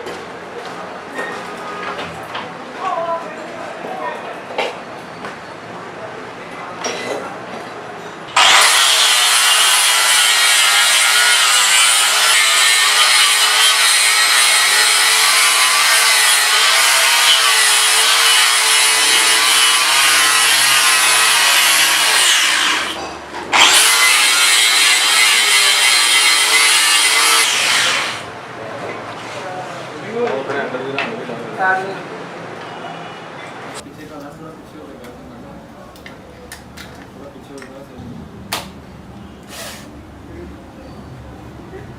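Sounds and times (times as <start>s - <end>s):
power tool running under load: 8.4s - 28.3s.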